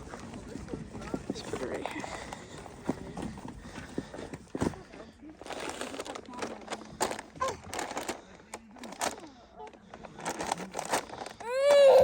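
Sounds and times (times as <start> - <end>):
rustling and knocking of objects: 0.0 - 11.8
young child squealing: 11.4 - 12.0.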